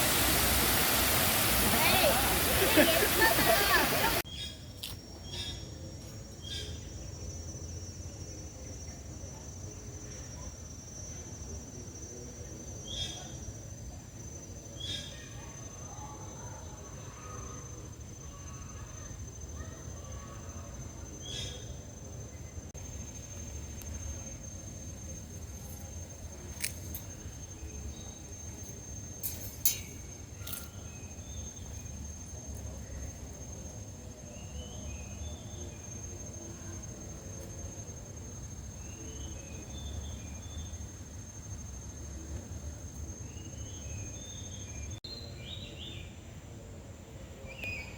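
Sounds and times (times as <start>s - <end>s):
faint bird chirps: 0.0s - 13.6s, 14.4s - 22.6s
high-pitched insect trill: 0.0s - 46.0s.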